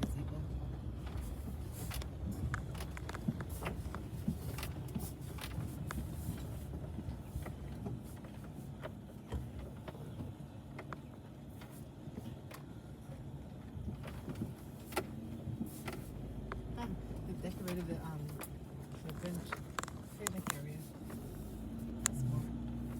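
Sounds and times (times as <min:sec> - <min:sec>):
vehicle engine and road rumble: 0:00.0 - 0:22.9
small clicks and crackles: 0:01.0 - 0:10.0, 0:13.9 - 0:22.9.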